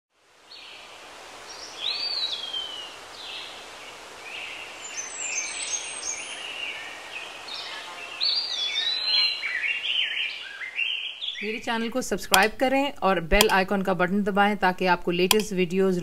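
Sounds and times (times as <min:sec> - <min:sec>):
outdoor background hiss: 0:00.1 - 0:16.0
birds chirping and whistling: 0:04.3 - 0:11.6.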